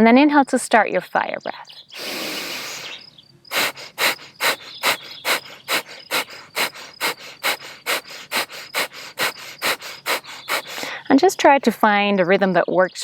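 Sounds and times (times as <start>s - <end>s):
forceful exhales through nose: 2.0s - 11.0s.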